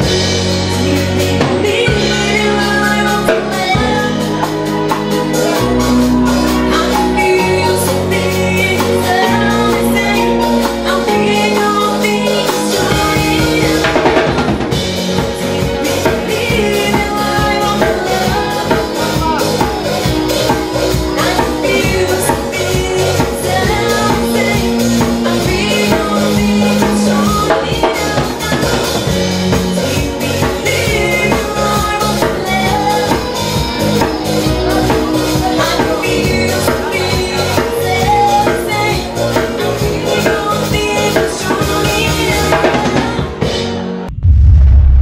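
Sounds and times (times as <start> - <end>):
drum kit steady beat: 0.0 - 43.6
live band playing: 0.0 - 45.0.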